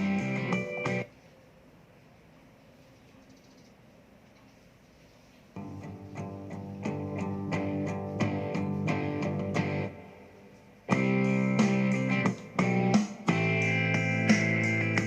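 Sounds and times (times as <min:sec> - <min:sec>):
guitar music through small speaker: 0:00.0 - 0:01.1, 0:05.6 - 0:15.0.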